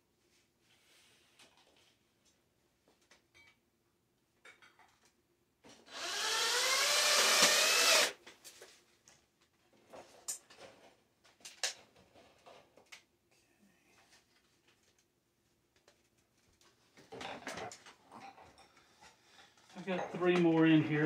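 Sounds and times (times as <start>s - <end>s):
power drill whining: 5.9s - 8.2s.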